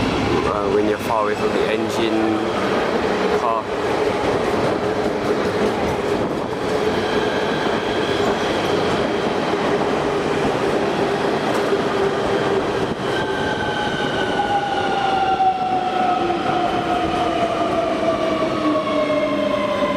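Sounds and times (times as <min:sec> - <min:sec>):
train rumbling on rails: 0:00.0 - 0:19.9.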